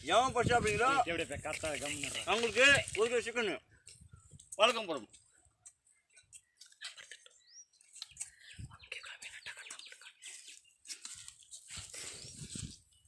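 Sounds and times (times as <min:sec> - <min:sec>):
faint bird chirps: 0:05.8 - 0:10.9.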